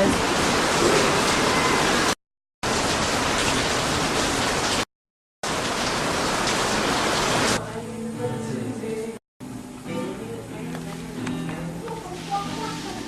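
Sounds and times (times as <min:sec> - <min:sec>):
loud static hiss: 0:05.5 - 0:13.0
quiet music: 0:07.6 - 0:13.0.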